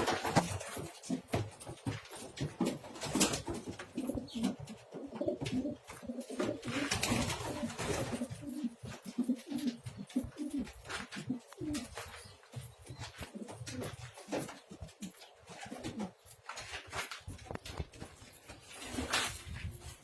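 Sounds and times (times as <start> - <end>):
clicks and rustles: 0.0 - 20.0
pigeons cooing: 4.0 - 12.3.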